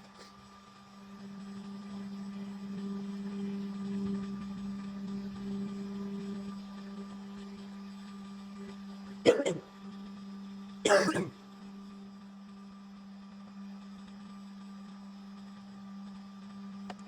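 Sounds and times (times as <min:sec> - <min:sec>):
steady low hum: 0:00.0 - 0:17.0
person coughing: 0:09.3 - 0:09.6, 0:10.9 - 0:11.3.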